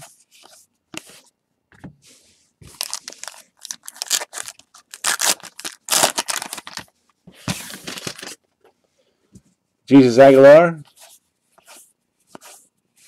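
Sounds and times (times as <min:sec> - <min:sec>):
paper and card rustling: 0:02.1 - 0:08.4
card packs tearing: 0:02.7 - 0:06.8, 0:07.6 - 0:08.4.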